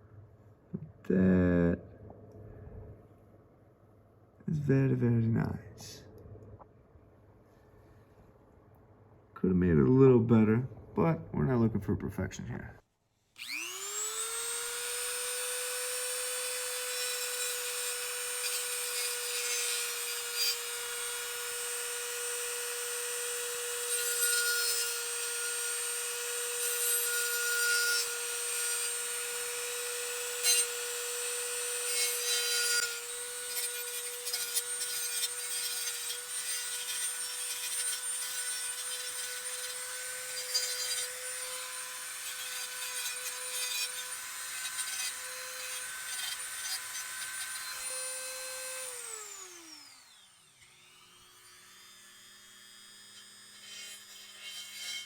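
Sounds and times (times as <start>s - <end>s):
rotary tool grinding metal: 13.4s - 55.0s.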